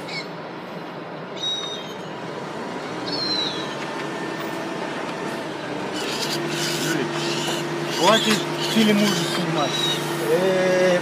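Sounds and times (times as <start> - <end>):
thin high bird calls: 0.0 - 0.4, 1.4 - 2.1, 3.0 - 3.8, 6.0 - 10.1.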